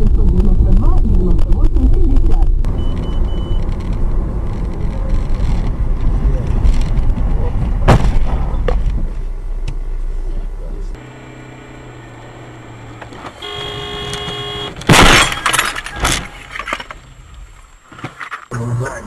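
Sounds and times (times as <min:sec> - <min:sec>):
road rumble: 0:00.0 - 0:19.0
vehicle collision crunching: 0:02.8 - 0:10.1, 0:11.0 - 0:18.5.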